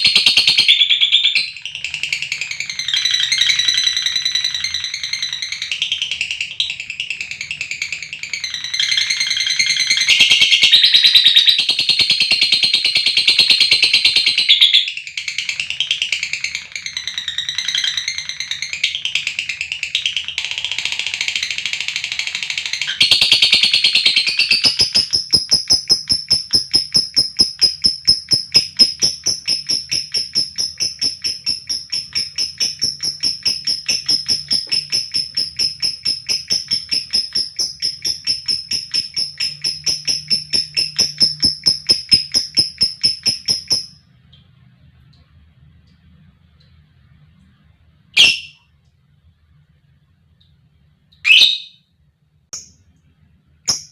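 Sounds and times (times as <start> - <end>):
lovebird squawking: 22.6 - 43.9, 48.2 - 48.6, 51.2 - 51.8
lovebird trilling: 22.7 - 43.9, 48.2 - 48.6, 51.2 - 51.8, 53.7 - 53.9.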